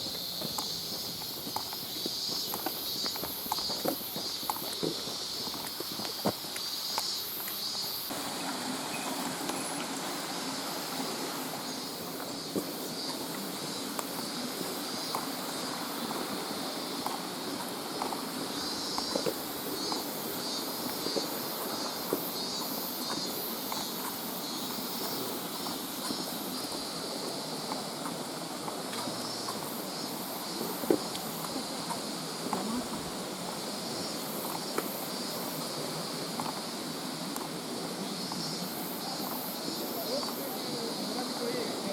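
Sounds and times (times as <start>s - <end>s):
footsteps on trail: 0.0s - 40.6s.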